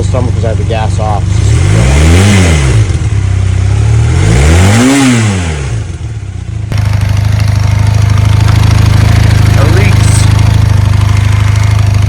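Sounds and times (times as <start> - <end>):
motorcycle engine revving and idling: 0.0 - 12.0.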